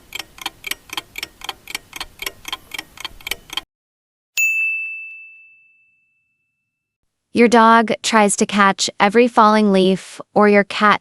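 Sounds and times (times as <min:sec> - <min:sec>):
clock ticking: 0:00.0 - 0:03.7
bright bell ding: 0:04.4 - 0:06.7.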